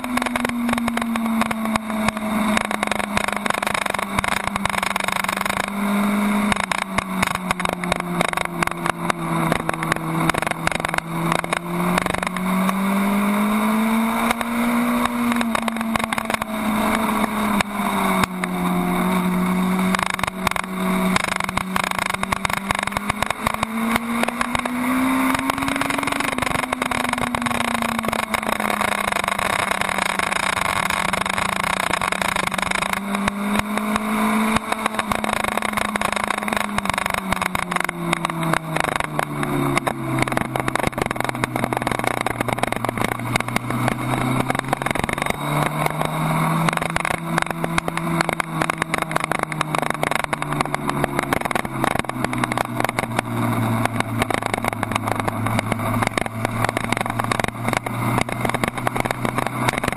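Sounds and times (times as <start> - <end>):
motorcycle engine revving: 0.0 - 59.9
wind rush over microphone: 0.0 - 59.9.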